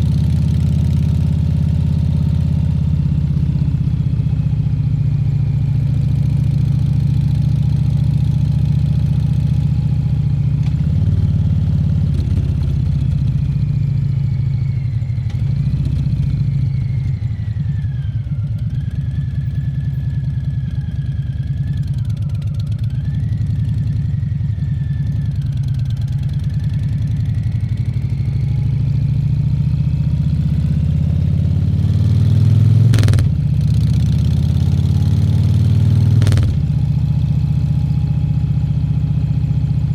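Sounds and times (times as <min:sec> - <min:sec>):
motorcycle engine rumbling: 0:32.4 - 0:39.9
sharp clicks: 0:33.0 - 0:33.3, 0:36.2 - 0:36.6.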